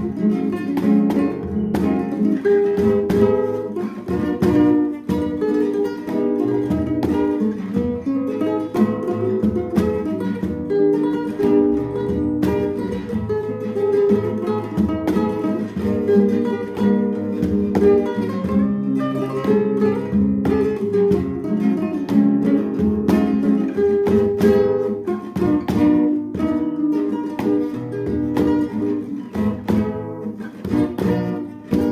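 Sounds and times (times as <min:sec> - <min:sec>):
acoustic guitar playing: 0:00.0 - 0:31.9.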